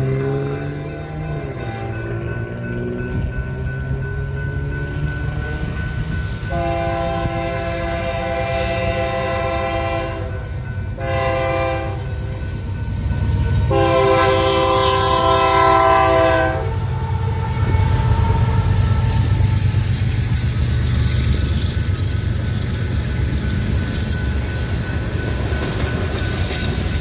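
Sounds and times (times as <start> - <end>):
low rumble of passing train: 0.0 - 27.0
locomotive air horn blasts: 6.5 - 10.4, 11.0 - 12.3, 13.7 - 19.4.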